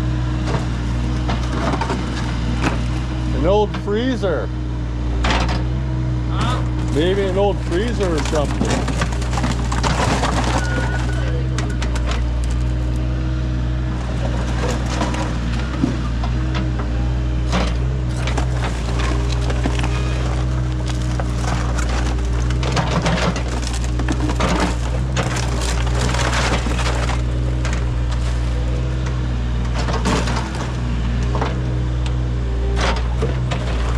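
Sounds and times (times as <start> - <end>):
digging machine engine running: 0.0 - 33.9
bucket scraping through debris: 6.4 - 13.0, 13.9 - 16.0, 17.4 - 30.8
breaking material clattering: 6.8 - 13.0, 17.5 - 28.8.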